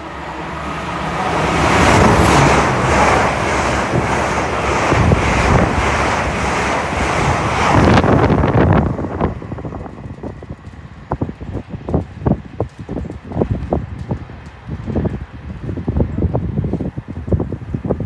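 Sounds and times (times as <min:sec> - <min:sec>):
high-speed train passing: 0:00.0 - 0:13.6.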